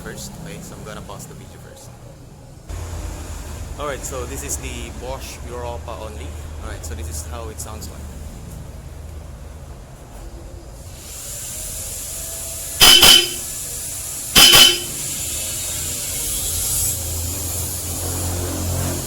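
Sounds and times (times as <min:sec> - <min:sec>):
car horn blasts: 0:12.8 - 0:13.5, 0:14.4 - 0:15.0.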